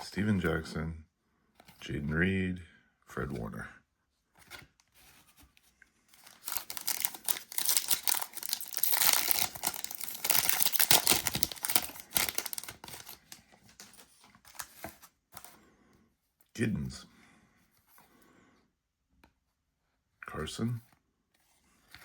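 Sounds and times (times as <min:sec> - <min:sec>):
foil wrapper tearing and crinkling: 0:06.2 - 0:13.4.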